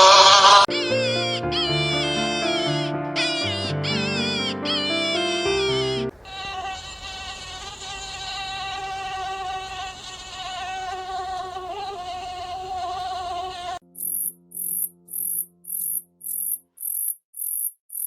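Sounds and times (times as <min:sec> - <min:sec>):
insect wing buzz: 0:05.6 - 0:18.0.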